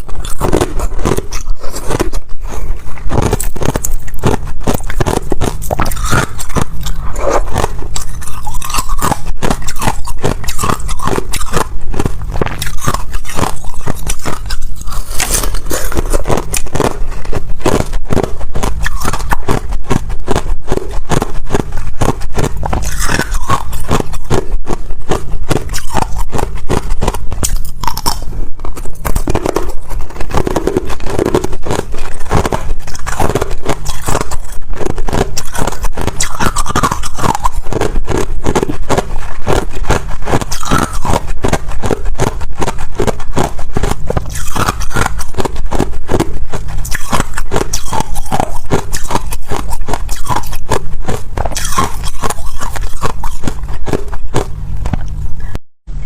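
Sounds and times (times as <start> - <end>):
ice being chewed: 0.0 - 55.6.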